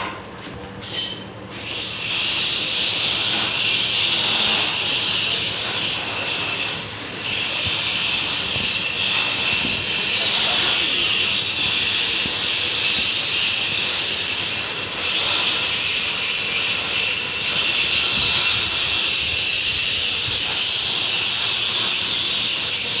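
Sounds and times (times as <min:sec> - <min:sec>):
loud machinery hiss: 0:01.5 - 0:23.0.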